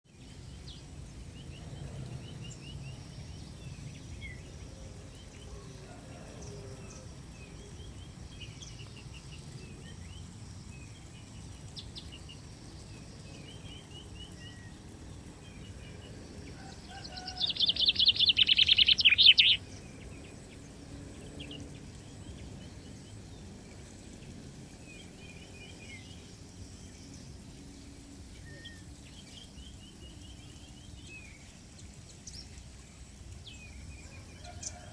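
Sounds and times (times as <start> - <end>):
small songbirds chirping: 0.0 - 34.9
bird rapid chattering notes: 17.8 - 19.6.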